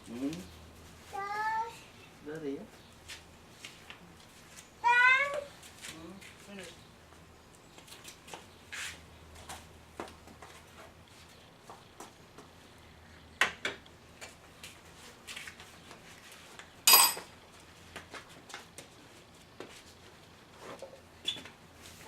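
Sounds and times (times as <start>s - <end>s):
metal clank ringing: 16.9s - 17.2s
metal tools clinking and knocking: 16.9s - 17.3s.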